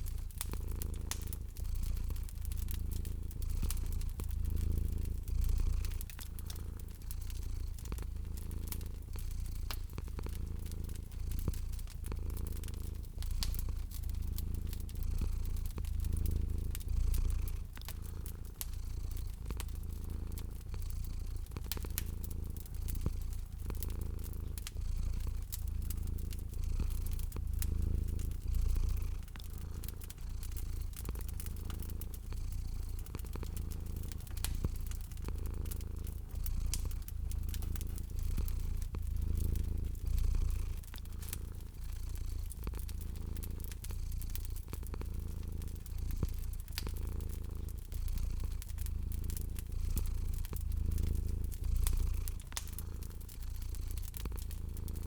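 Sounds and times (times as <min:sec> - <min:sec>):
cat purring: 0:00.0 - 0:55.0
fire crackling and popping: 0:00.0 - 0:55.0.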